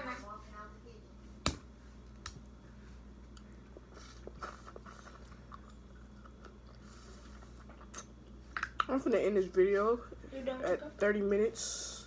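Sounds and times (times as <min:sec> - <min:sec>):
chewing food: 0:03.2 - 0:08.9.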